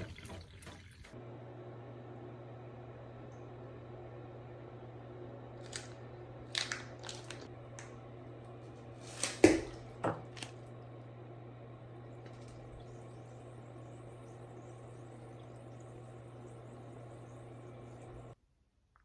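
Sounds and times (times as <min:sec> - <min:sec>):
steady low hum: 0:01.1 - 0:18.4
small objects being handled: 0:05.6 - 0:07.5, 0:09.0 - 0:10.6.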